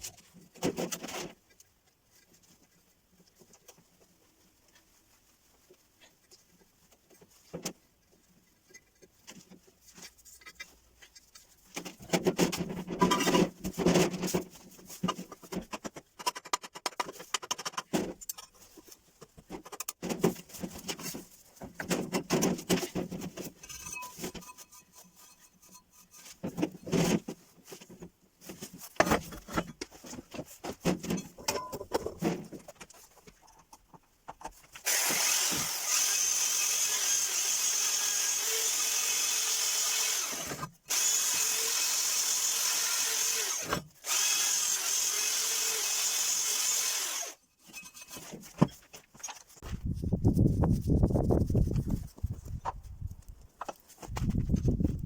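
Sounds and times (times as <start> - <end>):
knocks and clanks on metal parts: 11.8 - 18.6, 19.3 - 24.6, 26.4 - 33.0
power tool running: 34.9 - 47.4.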